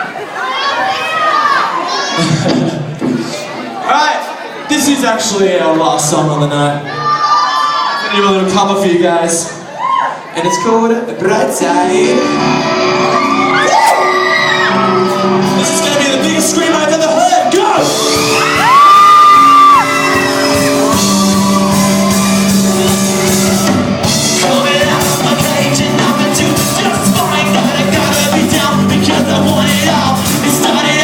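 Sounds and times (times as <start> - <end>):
crowd shouting and whooping: 9.5 - 10.9, 12.0 - 29.2
loud high held cry: 9.7 - 10.8, 12.6 - 16.0, 17.2 - 24.0
live band playing: 11.4 - 31.0
person singing: 11.8 - 16.8, 19.4 - 31.0.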